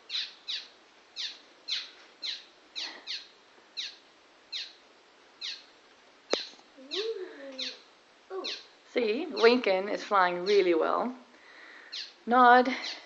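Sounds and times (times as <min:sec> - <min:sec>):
fledgling swallows chirping: 0:00.1 - 0:04.8, 0:06.3 - 0:08.7, 0:11.9 - 0:12.2.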